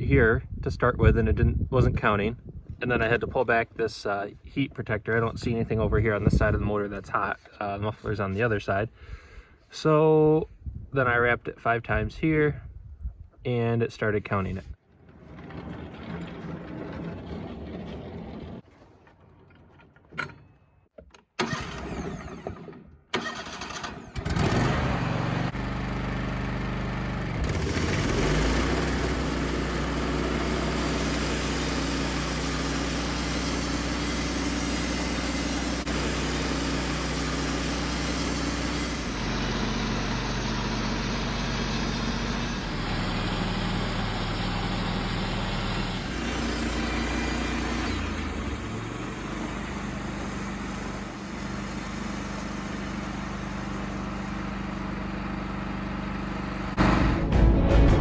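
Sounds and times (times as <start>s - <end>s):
sawmill engine running: 15.0s - 18.6s, 21.4s - 58.0s.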